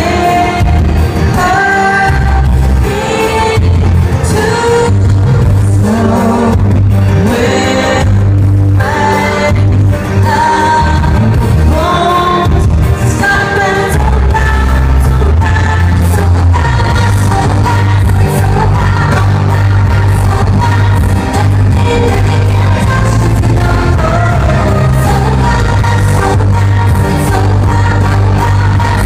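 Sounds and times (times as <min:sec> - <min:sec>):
live pop-rock band: 0:00.0 - 0:29.0
woman singing: 0:00.0 - 0:29.0.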